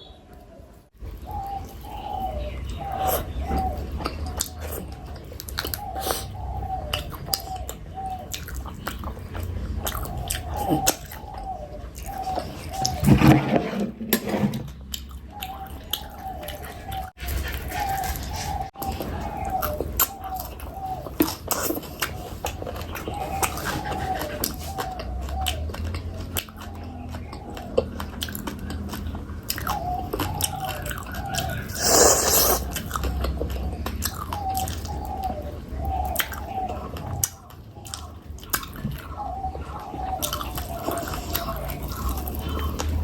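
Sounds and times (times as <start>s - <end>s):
wet chewing sounds: 2.8s - 13.0s, 14.7s - 43.0s
harsh mouth noise: 31.7s - 32.8s.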